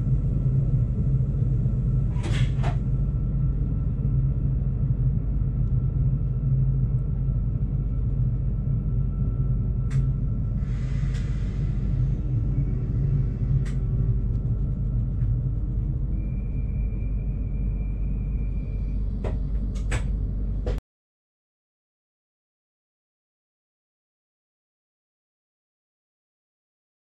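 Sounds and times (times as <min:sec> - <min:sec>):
diesel train rumble: 0:00.0 - 0:20.8.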